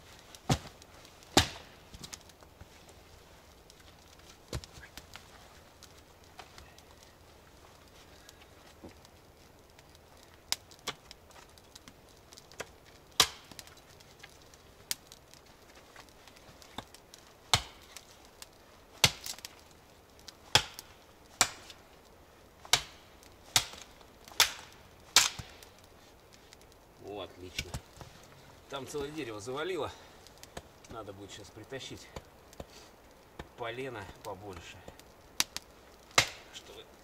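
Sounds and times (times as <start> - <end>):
wood being chopped: 0.4 - 2.2, 4.5 - 5.0, 12.5 - 13.7, 16.7 - 18.0, 19.0 - 19.6, 20.5 - 21.8, 22.6 - 25.6, 34.9 - 36.5.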